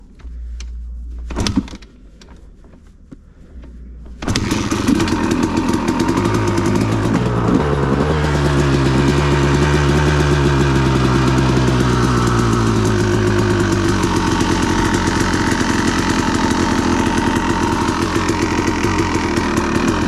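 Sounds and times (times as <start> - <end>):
two-stroke engine starting and idling: 4.2 - 20.0.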